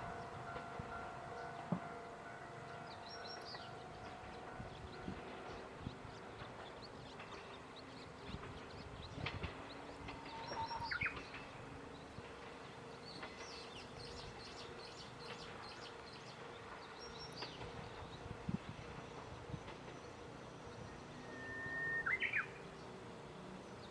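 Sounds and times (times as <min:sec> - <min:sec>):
gliding whistle: 0:21.2 - 0:22.5.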